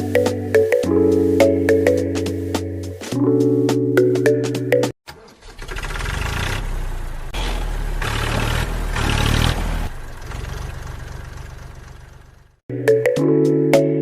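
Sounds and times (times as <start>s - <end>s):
small diesel engine running: 5.1s - 12.6s.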